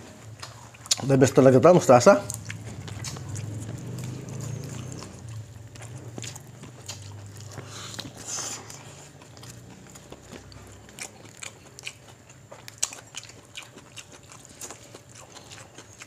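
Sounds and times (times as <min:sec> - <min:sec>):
chewing and lip-smacking: 0:00.0 - 0:16.0
sharp mouth clicks: 0:02.3 - 0:04.0.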